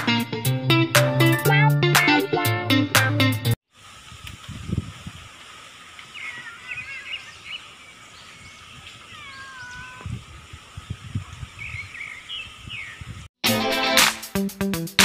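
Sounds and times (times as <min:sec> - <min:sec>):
birds chirping: 0:05.9 - 0:13.2
bird call gliding down: 0:06.1 - 0:10.1.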